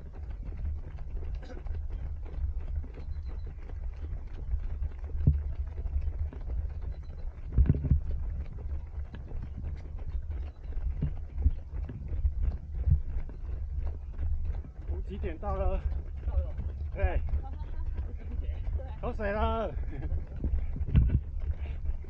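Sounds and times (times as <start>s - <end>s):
wind rumbling over microphone: 0.0s - 22.0s
camera jostling thumps: 5.1s - 9.7s, 19.9s - 21.5s.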